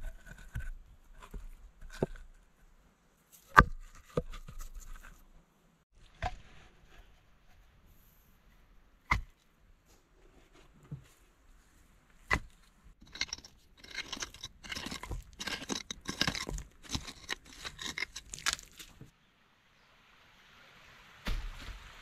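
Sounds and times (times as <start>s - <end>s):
soil crunching and scraping: 0.0s - 2.5s, 9.3s - 19.1s
digging tool striking earth: 3.5s - 3.9s, 12.3s - 19.1s.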